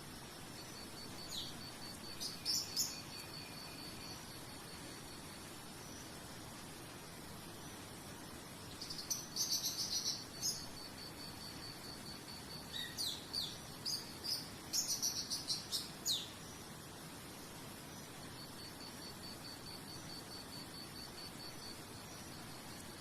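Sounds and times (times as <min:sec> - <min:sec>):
cricket chirping: 0:00.0 - 0:23.0
faint hiss: 0:00.0 - 0:23.0
songbird trilling: 0:02.2 - 0:03.6, 0:12.6 - 0:16.4.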